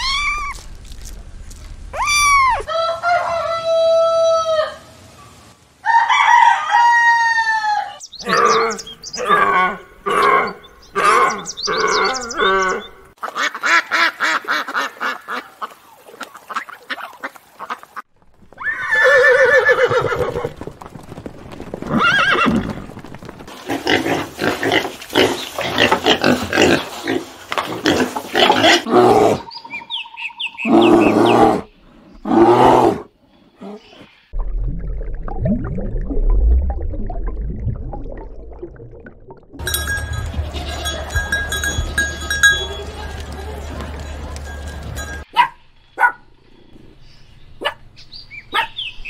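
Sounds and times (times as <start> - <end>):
rooster crowing: 2.3 - 4.9, 5.8 - 8.0.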